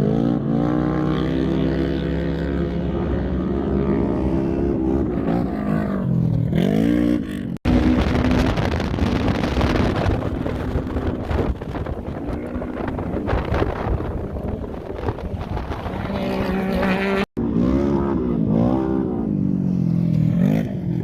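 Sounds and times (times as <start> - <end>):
race car engines revving: 0.0 - 21.0
wind on microphone: 7.6 - 17.3.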